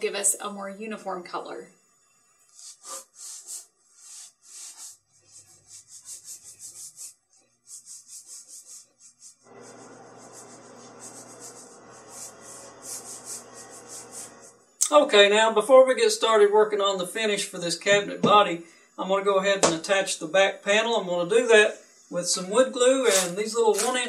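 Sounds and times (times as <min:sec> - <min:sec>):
paintbrush swishing on wood: 0:02.6 - 0:14.6, 0:23.0 - 0:24.0.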